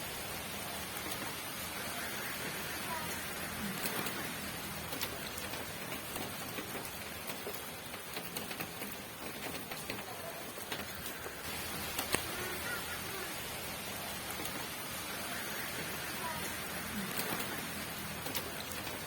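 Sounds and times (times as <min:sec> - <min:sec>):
raindrops ticking on hard surface: 0:00.0 - 0:19.0
steady rain falling: 0:00.0 - 0:19.0.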